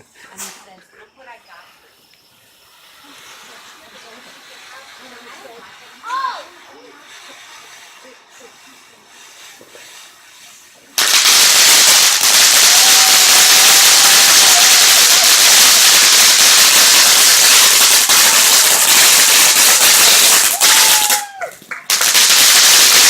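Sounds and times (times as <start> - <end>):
firework fountain crackling: 1.5 - 23.0.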